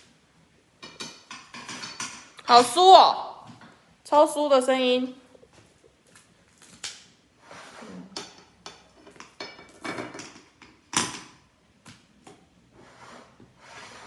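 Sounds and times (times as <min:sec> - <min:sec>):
cutlery scraping on a plate: 0:00.8 - 0:02.3, 0:07.5 - 0:10.8.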